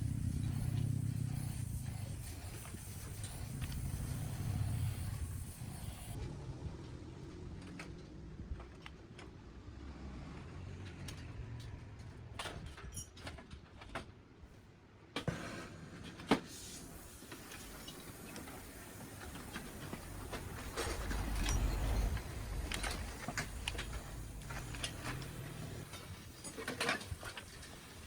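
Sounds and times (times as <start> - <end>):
low rumble: 0.0 - 8.5
tools and metal parts clicking: 10.8 - 14.2, 17.3 - 28.0.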